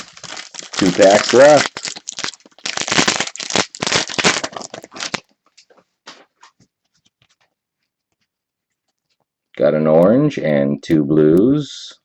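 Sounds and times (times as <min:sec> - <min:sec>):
card pack wrapper crinkling: 0:00.0 - 0:05.4
cards ticking and rustling: 0:00.0 - 0:05.6.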